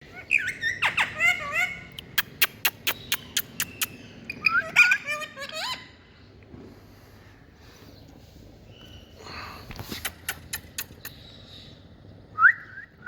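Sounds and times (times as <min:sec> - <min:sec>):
parrot chirps and whistles: 0:00.1 - 0:05.9.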